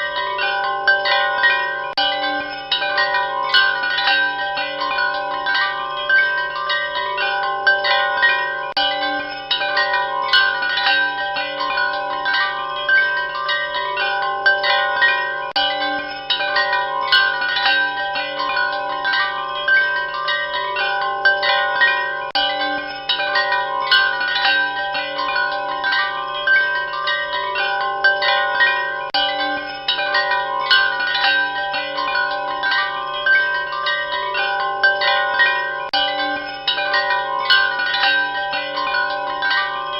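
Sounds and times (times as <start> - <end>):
chimes ringing: 0.0 - 39.9.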